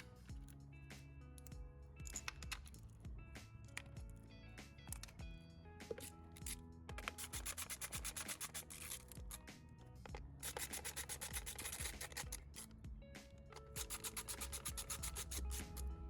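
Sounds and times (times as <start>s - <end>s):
soft background music: 0.0s - 16.0s
ratchet wrench clicking: 1.4s - 2.9s, 5.9s - 9.4s, 10.1s - 12.8s, 13.5s - 15.9s.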